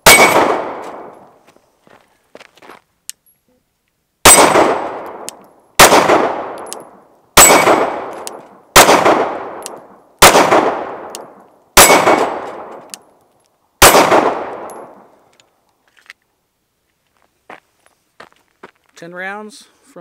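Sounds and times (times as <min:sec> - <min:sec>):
bullet pinging steel target: 0:00.0 - 0:01.2, 0:04.2 - 0:13.0, 0:13.8 - 0:15.1
pistol shots echoing: 0:00.0 - 0:01.2, 0:04.2 - 0:12.8, 0:13.8 - 0:15.1.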